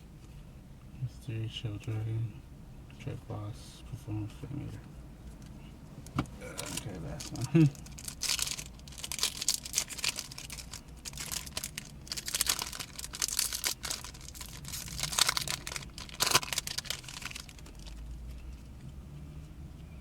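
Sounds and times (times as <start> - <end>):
foil wrapper tearing and crinkling: 6.6 - 18.1.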